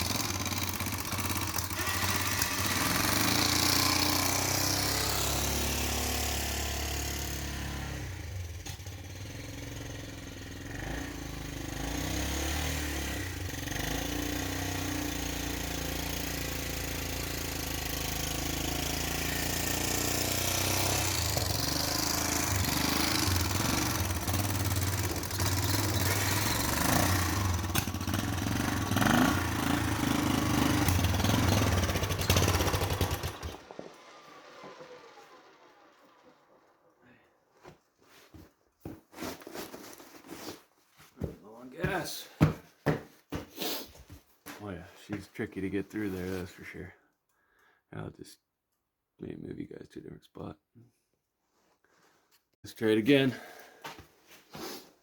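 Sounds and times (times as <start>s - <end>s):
atv engine in snow: 0.0s - 38.5s, 45.0s - 46.9s, 52.8s - 53.9s.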